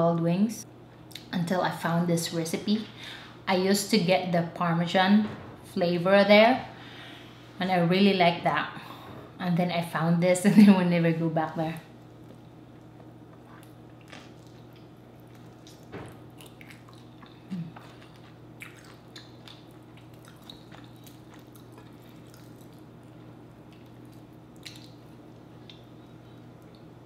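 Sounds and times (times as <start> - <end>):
faint steady hum: 0.0 - 27.0
person chewing: 12.0 - 26.0
wet mouth clicks and smacks: 23.8 - 25.0.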